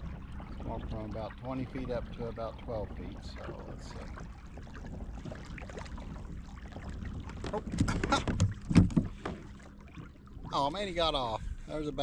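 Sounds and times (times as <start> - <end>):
kayak low rumble through water: 0.0 - 12.0
fishing gear knocking and clattering: 7.3 - 9.5.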